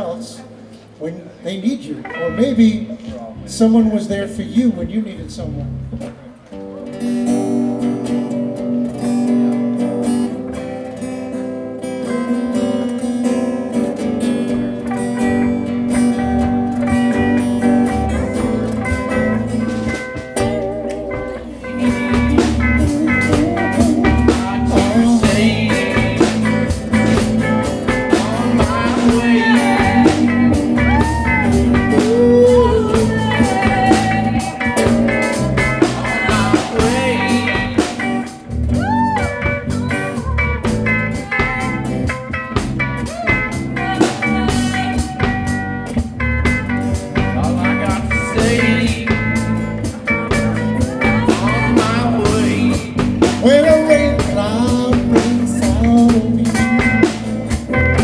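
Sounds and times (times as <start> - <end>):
bluesy band instrumental: 0.0 - 58.0
guitar: 0.0 - 58.0
drum hits: 21.9 - 58.0.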